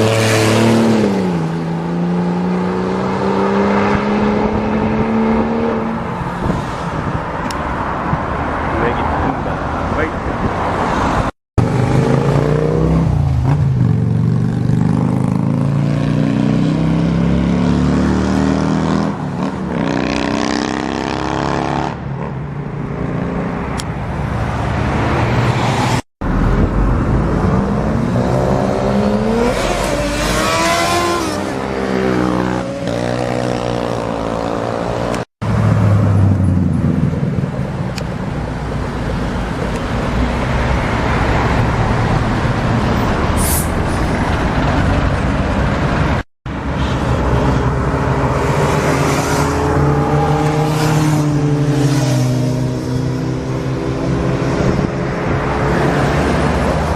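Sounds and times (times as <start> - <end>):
motorcycle engines revving: 11.6 - 22.4, 24.8 - 38.1, 44.3 - 56.9.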